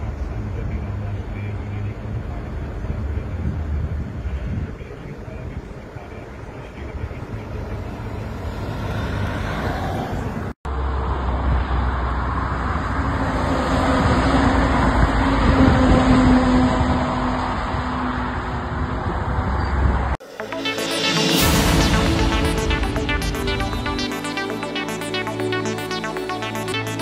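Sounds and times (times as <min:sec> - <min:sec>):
moving vehicle rumble: 0:00.0 - 0:20.2.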